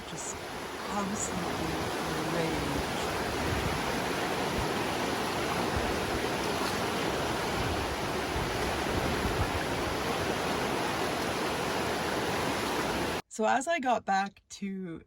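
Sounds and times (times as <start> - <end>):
river rushing: 0.0 - 13.2.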